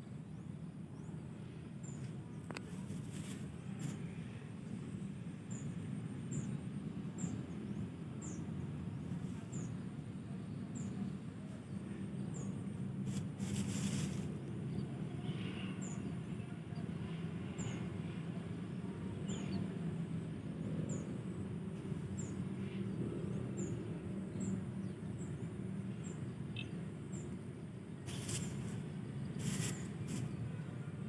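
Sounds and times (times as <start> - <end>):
steady low rumble: 0.0 - 31.0
rustling: 2.6 - 4.0, 13.1 - 14.4, 28.1 - 28.8, 29.4 - 30.3.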